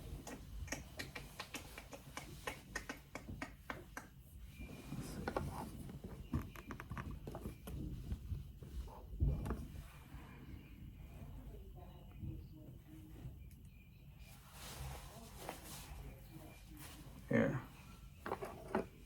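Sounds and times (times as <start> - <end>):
small clicks taps and scrapes: 5.2 - 7.9.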